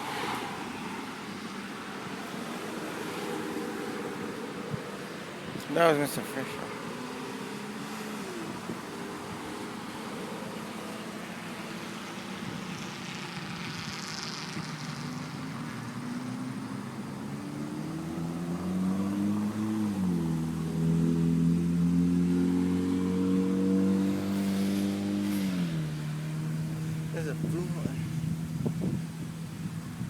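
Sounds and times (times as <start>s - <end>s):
road noise: 0.0s - 30.0s
car engine accelerating: 5.7s - 30.0s.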